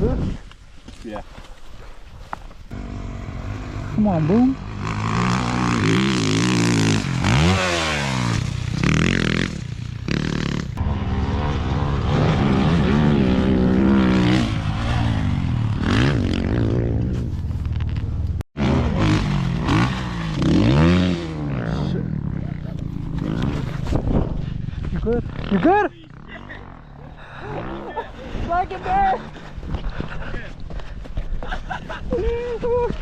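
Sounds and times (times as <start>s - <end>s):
dirt bike engine revving: 2.7s - 17.2s, 18.6s - 28.3s.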